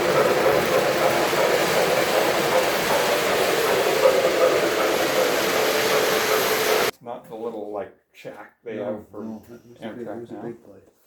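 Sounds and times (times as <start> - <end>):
model train running on track: 0.0 - 6.9.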